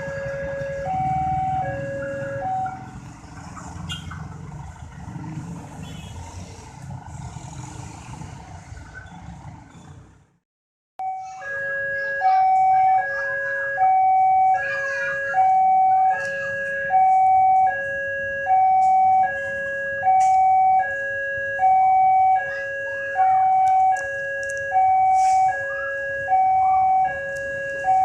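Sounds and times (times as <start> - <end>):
level crossing two-tone alarm: 0.0 - 2.8, 11.0 - 28.0.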